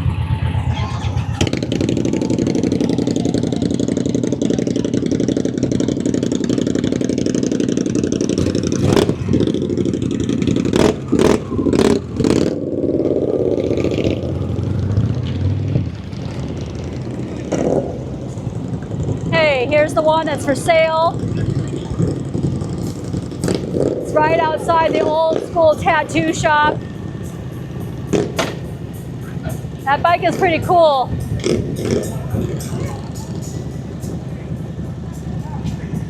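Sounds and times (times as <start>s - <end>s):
motorcycle engines running: 0.0s - 36.0s
sharp bangs: 8.2s - 12.6s, 28.0s - 29.9s.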